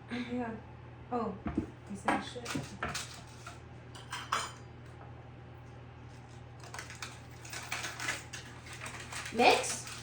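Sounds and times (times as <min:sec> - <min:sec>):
baking things clicking and clinking: 0:01.5 - 0:04.6, 0:06.2 - 0:10.0.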